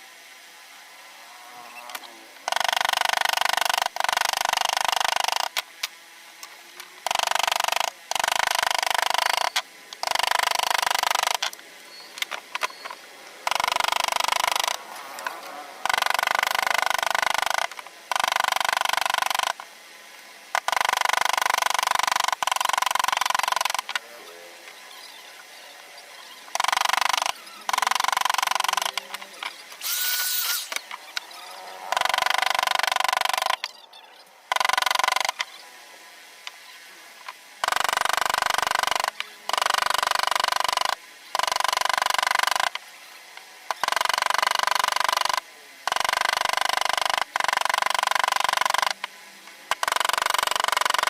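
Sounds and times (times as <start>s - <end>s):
power tool working wood: 26.5s - 30.9s, 31.9s - 33.6s.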